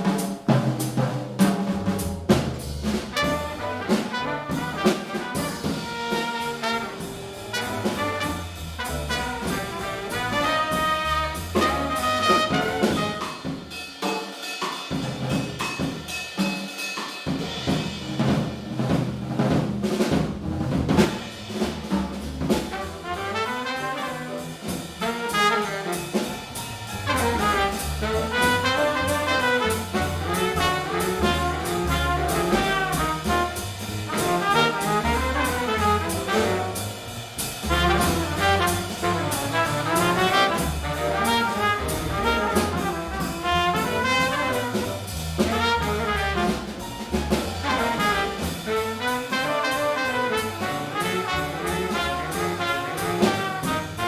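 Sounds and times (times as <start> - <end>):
double bass: 0.0 - 13.5, 17.4 - 54.0
piano: 0.0 - 16.5, 17.2 - 54.0
drum kit: 0.0 - 54.0
trumpet: 3.1 - 13.8, 22.6 - 54.0
baritone saxophone: 3.2 - 13.4, 27.1 - 36.9, 37.7 - 46.7, 47.6 - 54.0.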